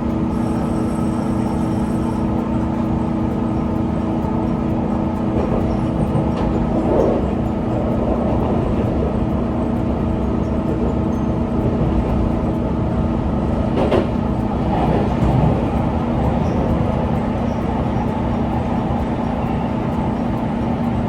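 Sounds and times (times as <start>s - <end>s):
train motor hum: 0.0s - 21.0s
train wheels rumbling on rails: 0.0s - 21.0s.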